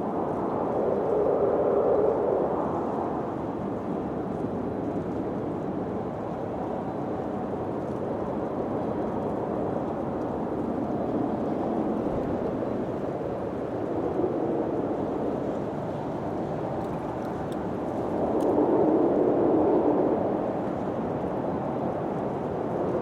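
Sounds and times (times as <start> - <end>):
wind blowing: 0.0 - 23.0.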